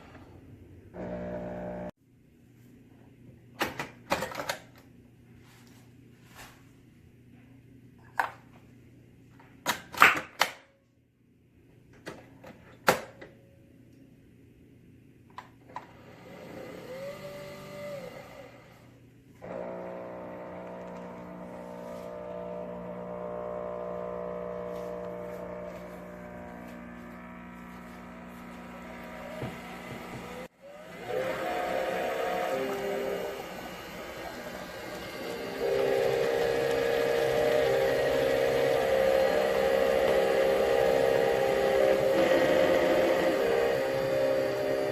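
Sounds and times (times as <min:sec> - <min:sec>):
coffee machine motor humming: 0:01.0 - 0:02.0, 0:19.4 - 0:44.9.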